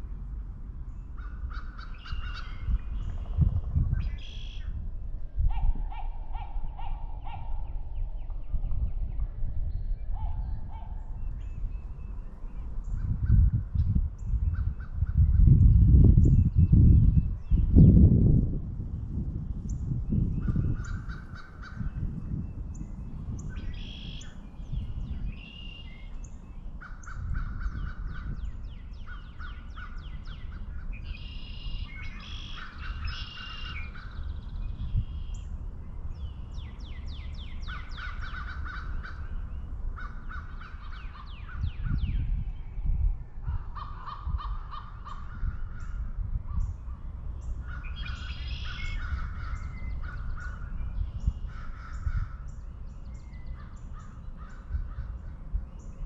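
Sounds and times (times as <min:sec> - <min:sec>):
steady low rumble: 0:00.0 - 0:56.0
crows cawing: 0:01.2 - 0:02.6, 0:20.8 - 0:21.8, 0:26.8 - 0:28.4, 0:32.2 - 0:34.3, 0:37.7 - 0:39.4, 0:40.0 - 0:41.4, 0:43.5 - 0:46.0, 0:47.6 - 0:50.7, 0:51.4 - 0:52.5.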